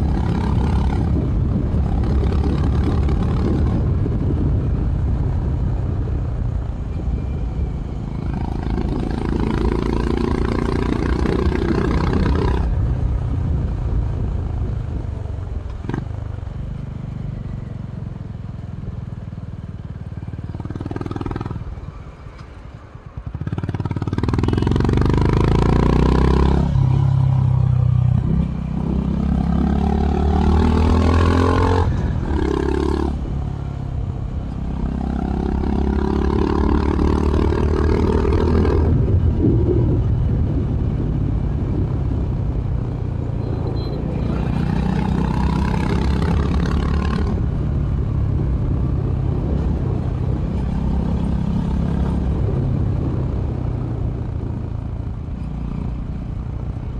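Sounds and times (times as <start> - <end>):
motorcycle engine revving through gears: 0.0 - 4.8, 8.0 - 12.8, 20.4 - 21.8, 23.2 - 56.6.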